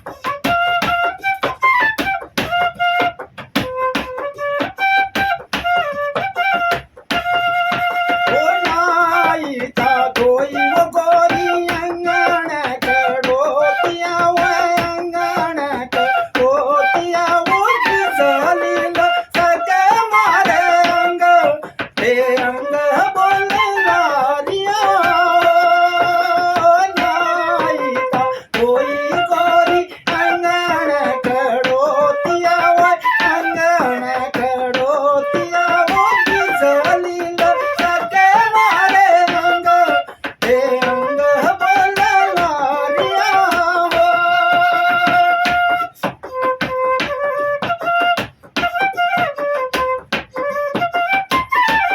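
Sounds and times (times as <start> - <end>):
bamboo flute melody: 0.0 - 51.9
person singing: 8.2 - 46.1.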